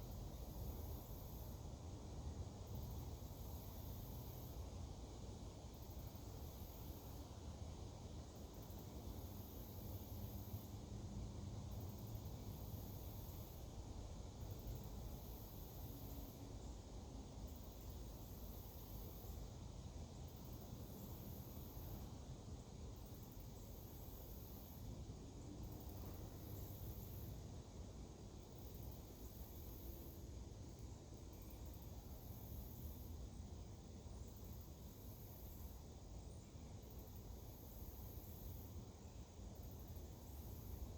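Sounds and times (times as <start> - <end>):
insects buzzing: 14.3 - 40.9.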